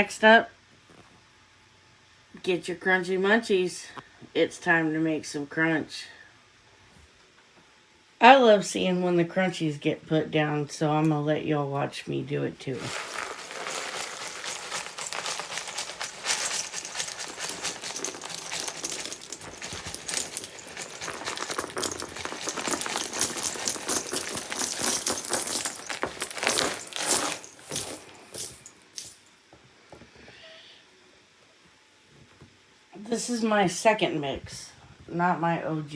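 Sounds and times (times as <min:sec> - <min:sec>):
small grains pattering onto carpet: 0:12.8 - 0:29.3.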